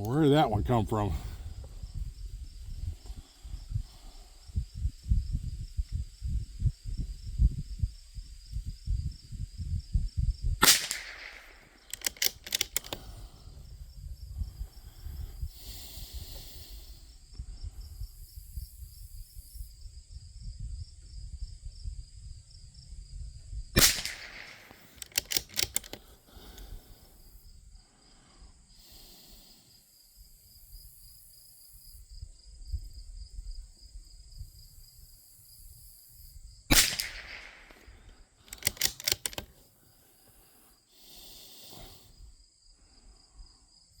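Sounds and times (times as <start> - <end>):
rifle shots: 10.6 - 13.0, 23.8 - 25.9, 36.7 - 39.5
rifle bolt clicking: 10.6 - 13.1, 23.8 - 26.7, 36.7 - 37.9, 38.5 - 39.6.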